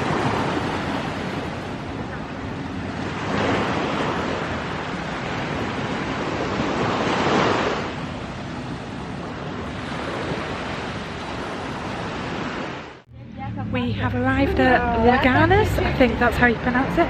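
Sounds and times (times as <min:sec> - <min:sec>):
sea waves washing onto beach: 0:00.0 - 0:13.0.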